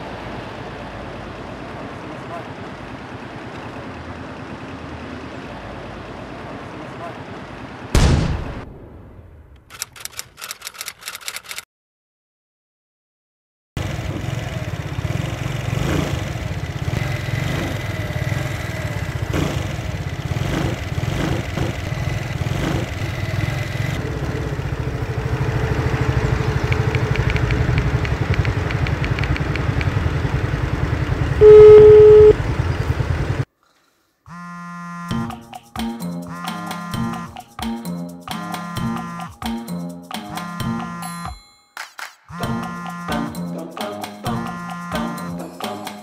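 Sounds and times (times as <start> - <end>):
moped engine running: 13.8 - 33.5
horn beep: 31.4 - 32.4, 36.3 - 37.4, 38.6 - 39.4, 40.3 - 41.4, 42.3 - 43.4, 44.3 - 45.5.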